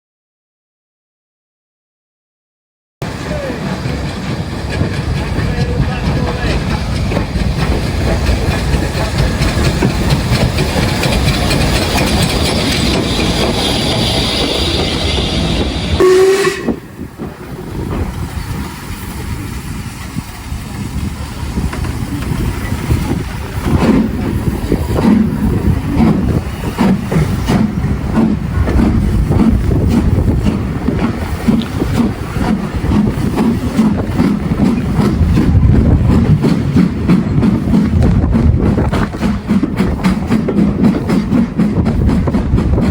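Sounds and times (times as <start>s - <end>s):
rhythmic train clatter: 3.0s - 42.9s
steam train rumble and hiss: 3.0s - 42.9s
short tone: 16.0s - 16.8s.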